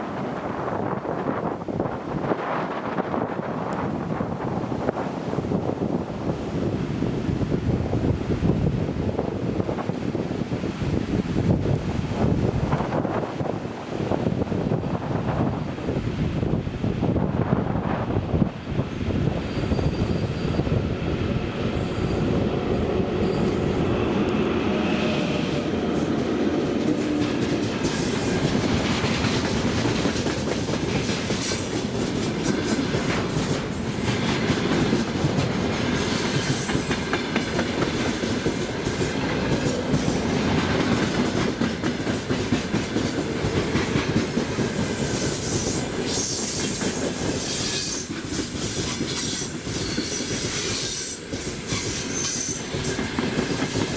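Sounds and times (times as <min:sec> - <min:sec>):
freight train rumbling past: 0:00.0 - 0:53.9
wheels clacking over rail joints: 0:21.4 - 0:53.9
high-pitched wheel squeal: 0:49.2 - 0:52.8.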